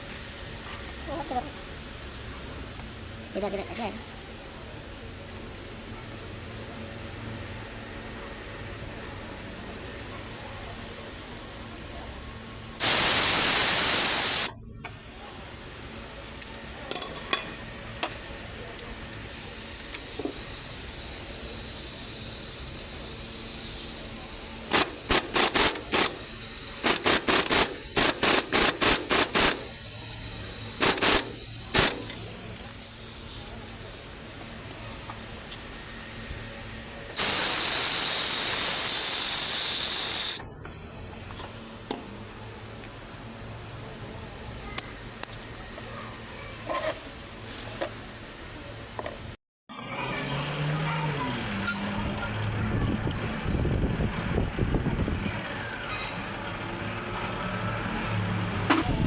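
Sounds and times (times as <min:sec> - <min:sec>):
hissing spray bursts: 0:12.8 - 0:14.5, 0:18.8 - 0:33.9, 0:37.2 - 0:40.4.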